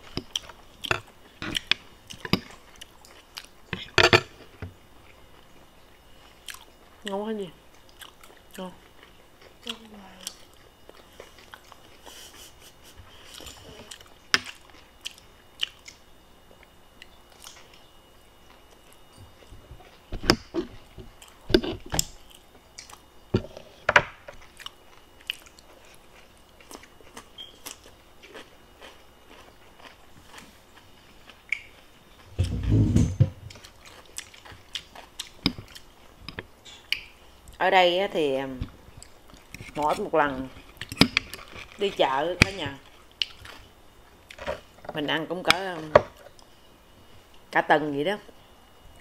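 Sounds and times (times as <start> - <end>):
chewing and biting food: 0.0 - 5.4, 6.3 - 12.1, 24.3 - 32.6, 33.5 - 37.6, 38.7 - 44.8.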